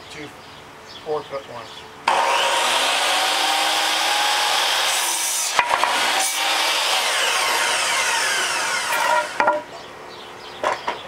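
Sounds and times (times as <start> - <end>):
miter saw cutting wood: 2.1 - 9.6.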